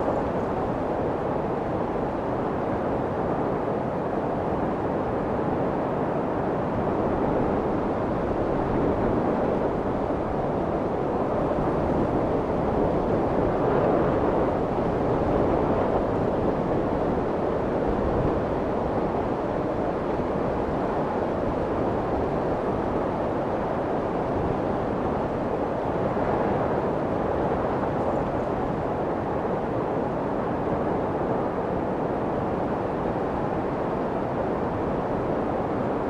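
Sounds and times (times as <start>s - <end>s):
soft muffled white noise: 0.0s - 3.0s.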